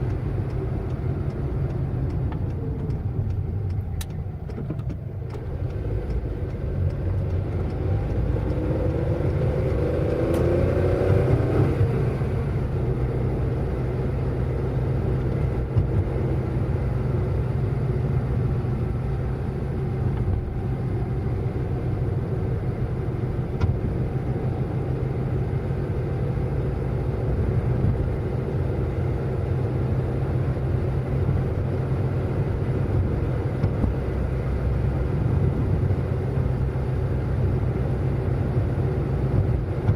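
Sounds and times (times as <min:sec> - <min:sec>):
car engine and road rumble: 0:00.0 - 0:39.9
engine revving up: 0:07.8 - 0:12.4.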